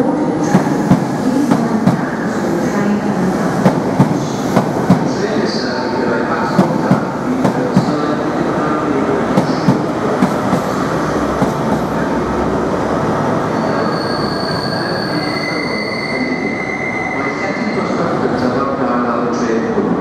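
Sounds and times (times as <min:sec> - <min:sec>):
train rumbling past: 0:00.0 - 0:20.0
high-pitched wheel squeal: 0:13.6 - 0:17.9.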